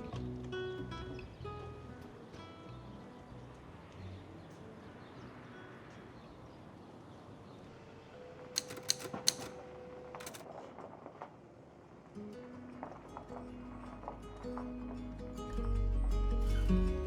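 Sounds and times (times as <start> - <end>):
sharp clicks or taps: 8.6 - 9.6.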